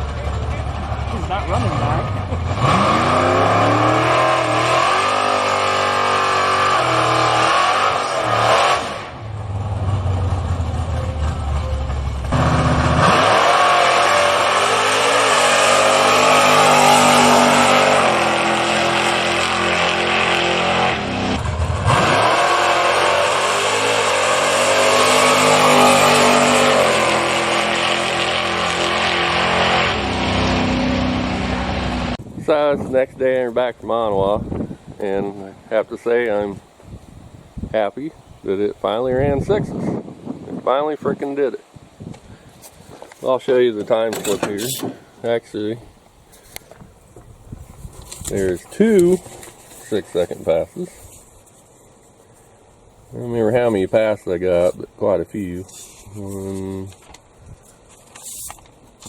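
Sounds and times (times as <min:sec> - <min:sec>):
pickup engine revving: 0:00.0 - 0:32.2.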